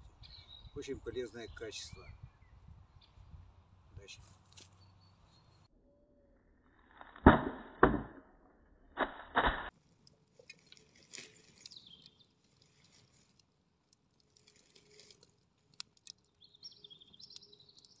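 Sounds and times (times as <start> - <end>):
faint bird chirps: 16.3 - 18.0.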